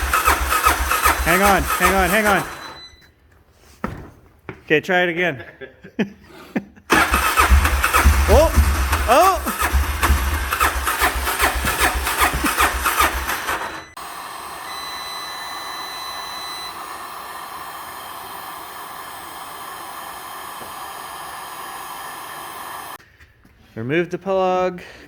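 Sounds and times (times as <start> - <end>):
atv engine running: 0.0 - 2.7, 6.9 - 13.9.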